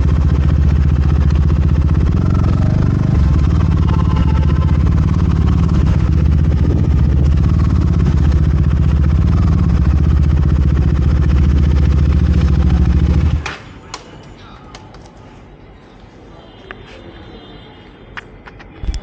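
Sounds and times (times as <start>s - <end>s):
motorcycle engine idling: 0.0s - 13.4s.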